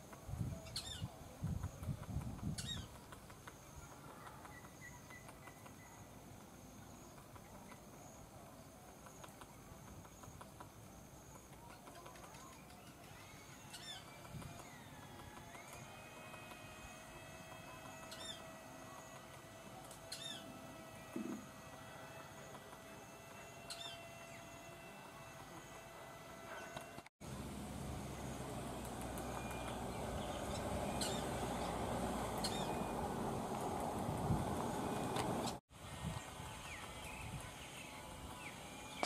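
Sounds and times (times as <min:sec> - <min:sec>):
high falling bird chirps: 0:20.1 - 0:20.6, 0:23.3 - 0:24.7, 0:29.3 - 0:33.2.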